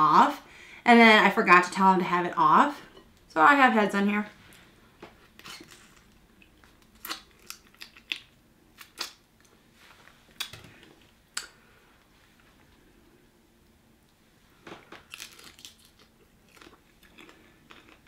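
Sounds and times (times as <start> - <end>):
shrimp shells crunching: 15.0 - 18.0.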